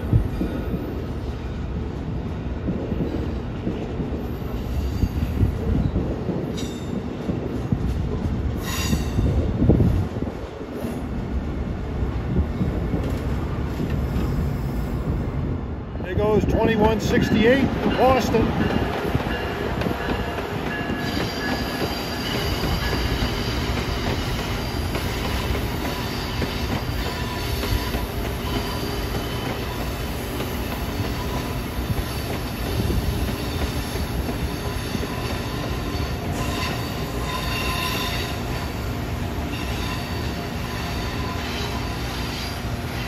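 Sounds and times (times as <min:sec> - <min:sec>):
train wheels rumbling on rail: 0:00.0 - 0:43.0
high-pitched wheel squeal: 0:34.5 - 0:38.4.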